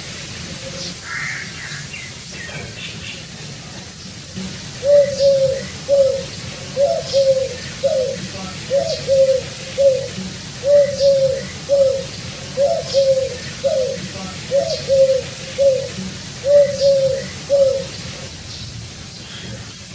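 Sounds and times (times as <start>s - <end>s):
pigeon cooing: 4.4s - 18.3s.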